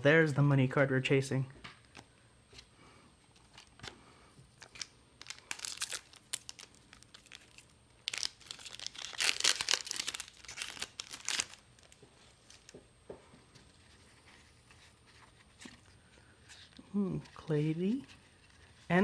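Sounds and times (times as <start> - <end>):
foil wrapper crinkling: 4.6 - 12.8.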